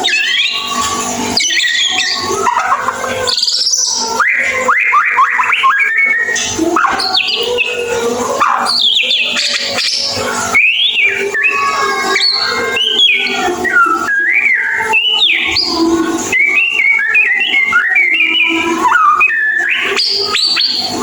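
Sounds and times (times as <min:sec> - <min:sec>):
bird singing whistled notes: 0:00.0 - 0:21.0.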